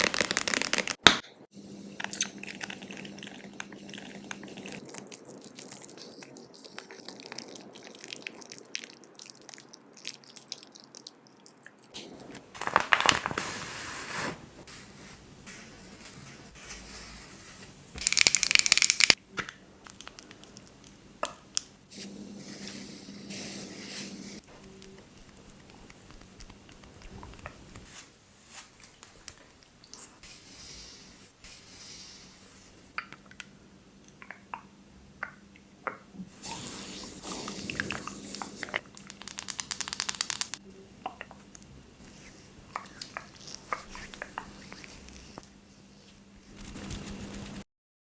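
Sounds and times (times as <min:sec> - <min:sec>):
face mask crinkling: 0:00.0 - 0:01.0, 0:12.5 - 0:13.6.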